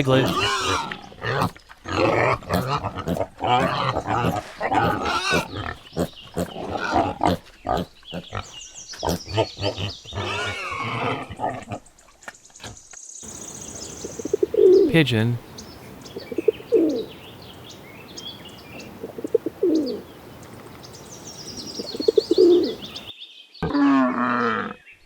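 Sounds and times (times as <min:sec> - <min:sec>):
piglet grunting and squealing: 0:00.0 - 0:11.8.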